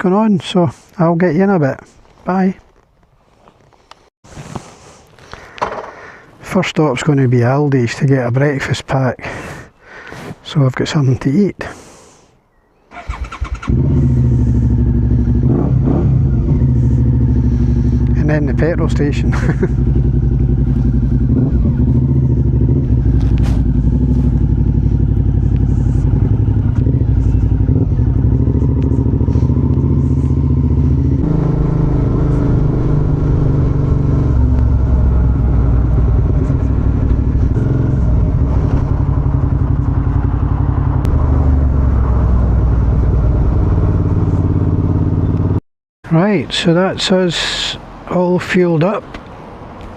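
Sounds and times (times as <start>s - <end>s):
motorcycle engine running: 13.1s - 45.6s.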